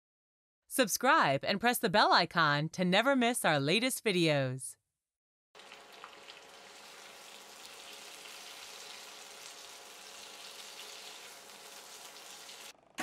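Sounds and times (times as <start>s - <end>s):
chicken frying in oil: 5.6s - 12.8s.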